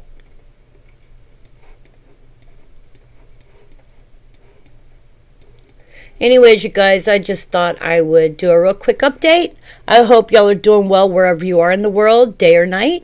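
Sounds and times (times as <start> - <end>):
low steady hum: 0.0 - 13.0
computer mouse clicks: 0.9 - 4.8, 5.4 - 5.8.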